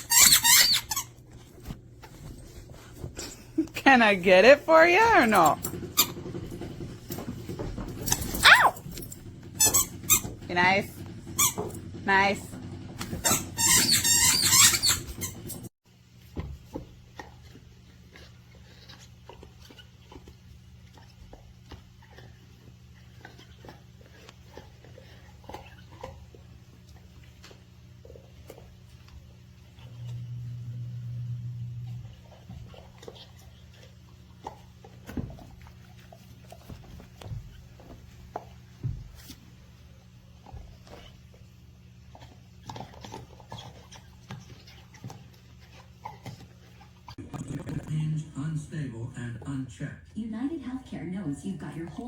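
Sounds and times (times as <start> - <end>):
squeaky chew toy squealing: 0.0 - 1.1, 13.2 - 15.4
low steady hum: 17.1 - 45.8.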